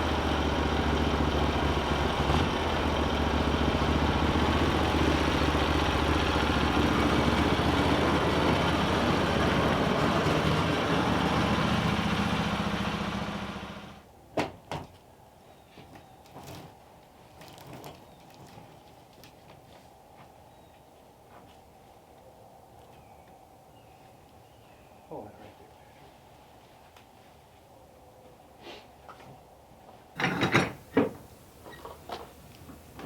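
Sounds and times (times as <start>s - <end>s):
sawmill engine running: 0.0s - 14.0s.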